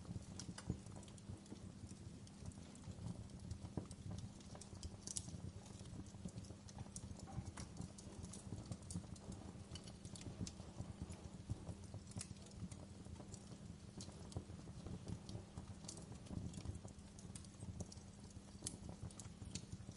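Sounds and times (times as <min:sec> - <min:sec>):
wood fire crackling: 0:00.0 - 0:19.9.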